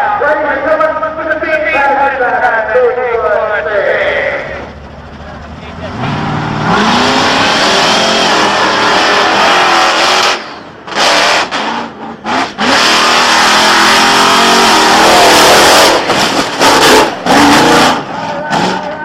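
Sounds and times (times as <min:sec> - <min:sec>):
monster truck engine revving: 0:03.9 - 0:19.0.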